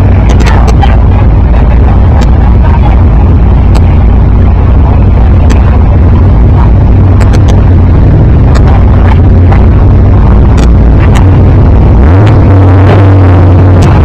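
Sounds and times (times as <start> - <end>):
deep exhaust drone: 0.0 - 14.0
sharp exhaust pops: 0.1 - 0.9, 7.0 - 14.0.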